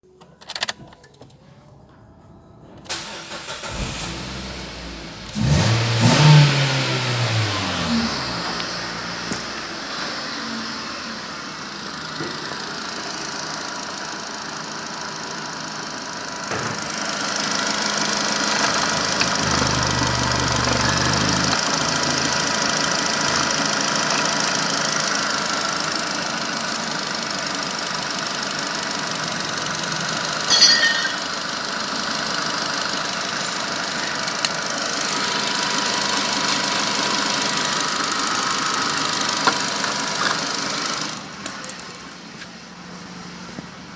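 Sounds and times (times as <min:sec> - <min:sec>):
car engine idling: 0:02.2 - 0:43.5
sharp engine clatter: 0:18.4 - 0:23.6.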